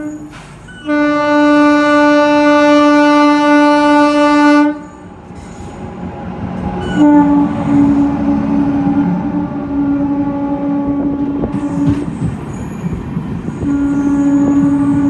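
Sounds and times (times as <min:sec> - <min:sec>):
locomotive horn blast: 0:00.0 - 0:05.1, 0:06.8 - 0:12.3, 0:13.6 - 0:15.0
train rushing past: 0:00.0 - 0:15.0.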